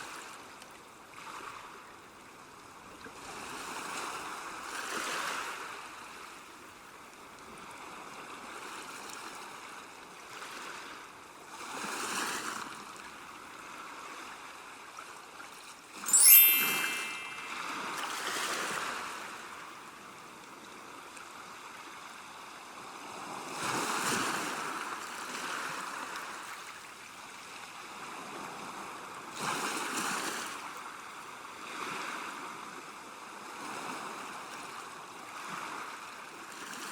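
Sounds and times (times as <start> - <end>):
sharp high-pitched sound: 16.1 - 18.4.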